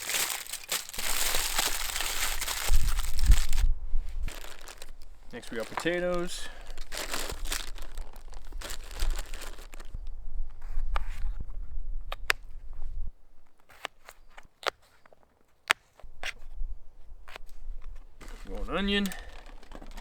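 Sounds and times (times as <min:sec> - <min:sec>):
potatoes rustling: 0:00.0 - 0:10.1, 0:17.3 - 0:20.0.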